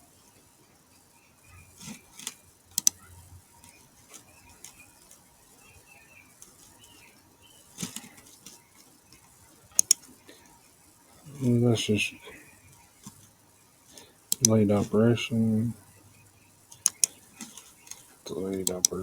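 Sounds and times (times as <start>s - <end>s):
mouse and keyboard clicks: 2.2s - 3.0s, 9.8s - 10.1s, 16.8s - 18.0s.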